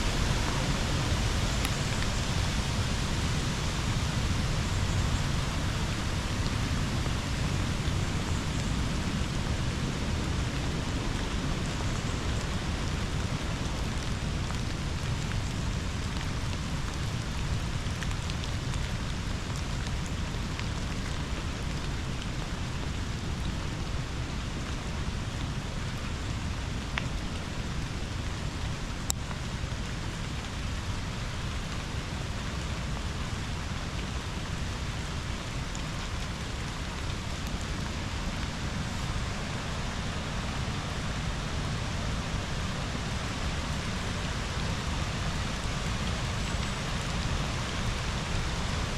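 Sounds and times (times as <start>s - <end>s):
river water rushing: 0.0s - 15.0s, 32.8s - 48.9s
rain falling: 0.0s - 48.9s.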